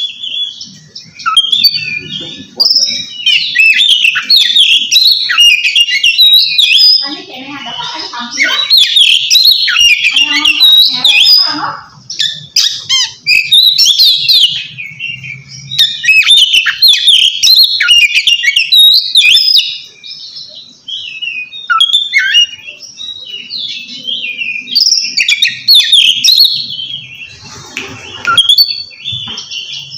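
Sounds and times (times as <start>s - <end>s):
bird singing whistled phrases: 0.0s - 7.1s, 8.4s - 27.3s, 28.2s - 29.9s.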